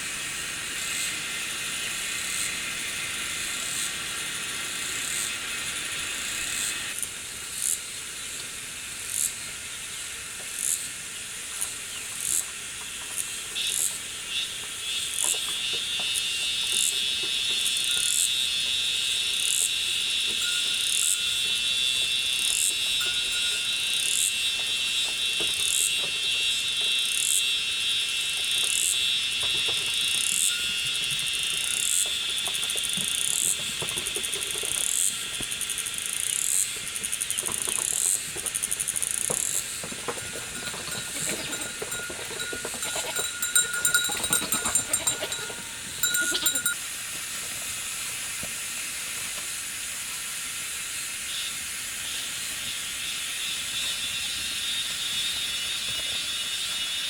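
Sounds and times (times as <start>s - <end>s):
insect high buzz: 0.4s - 8.0s, 13.2s - 33.7s, 34.8s - 40.1s.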